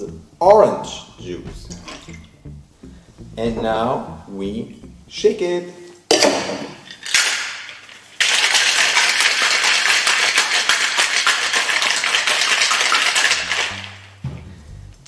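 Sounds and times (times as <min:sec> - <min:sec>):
ice rattling in cocktail shaker: 0:06.8 - 0:14.0.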